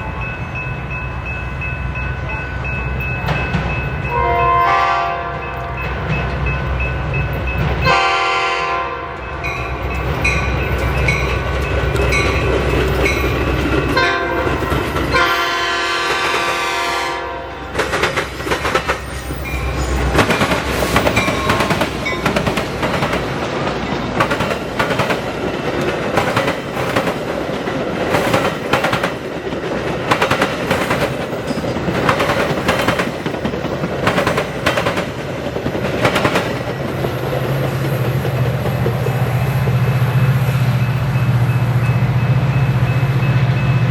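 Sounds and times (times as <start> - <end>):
train wheels clacking on rails: 0.0 - 8.6, 9.2 - 17.0, 17.6 - 43.9
locomotive horn: 4.1 - 5.9, 7.8 - 9.3, 14.0 - 17.8.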